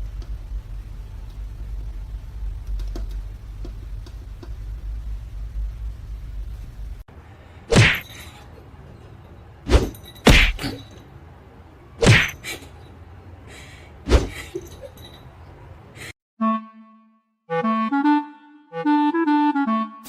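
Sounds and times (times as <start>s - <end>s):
faint steady background noise: 0.0s - 16.2s
sharp whacks: 7.7s - 8.1s, 9.7s - 10.8s, 12.0s - 12.4s, 14.1s - 14.4s.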